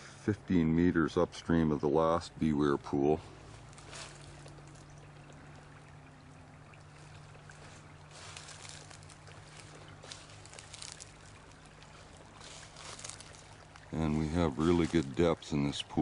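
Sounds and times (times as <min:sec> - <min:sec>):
creek water trickling: 0:00.0 - 0:16.0
low steady hum: 0:00.0 - 0:16.0.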